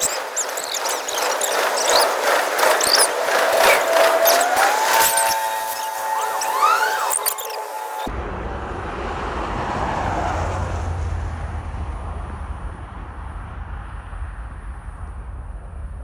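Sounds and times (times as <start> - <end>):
gliding squeal-like tones: 0.0 - 8.1
low rumble with hiss: 8.1 - 16.0.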